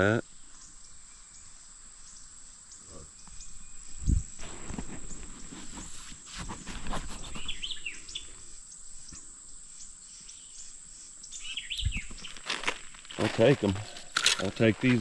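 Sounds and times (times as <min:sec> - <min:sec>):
bird chirps: 0:07.2 - 0:12.4.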